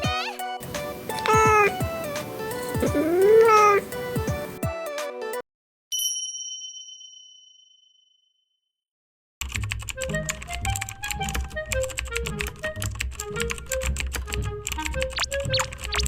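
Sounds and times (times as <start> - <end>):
computer keyboard typing: 9.4 - 16.0.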